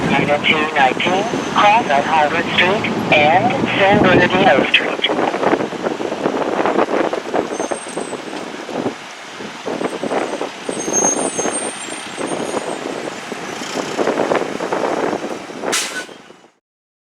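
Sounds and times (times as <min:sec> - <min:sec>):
engine and road noise: 0:00.0 - 0:16.6
air brake hiss: 0:15.7 - 0:16.2.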